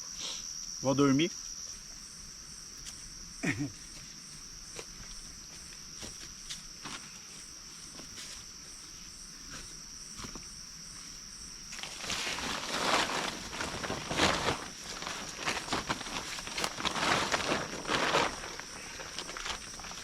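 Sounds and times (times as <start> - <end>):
insects chirring: 0.0 - 20.0
close rustling and crackling: 11.7 - 20.0.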